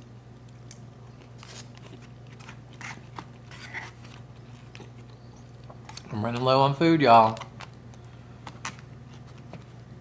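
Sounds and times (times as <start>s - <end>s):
person chewing shrimp: 0.4s - 6.2s.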